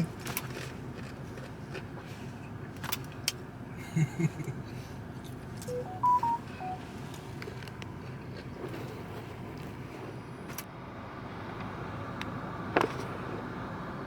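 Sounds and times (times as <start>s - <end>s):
electronic beeps: 5.7s - 6.8s.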